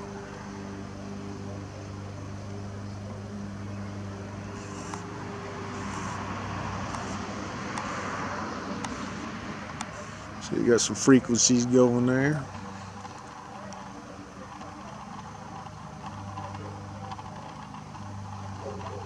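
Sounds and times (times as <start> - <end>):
low motor hum: 0.0 - 19.0.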